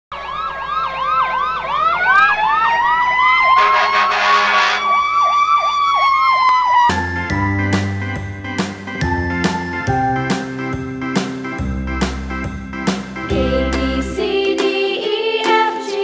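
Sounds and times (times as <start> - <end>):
fast yelp siren: 0.1 - 7.3
wailing siren: 0.1 - 7.6
harsh horn blast: 3.5 - 5.0
music: 6.9 - 16.0.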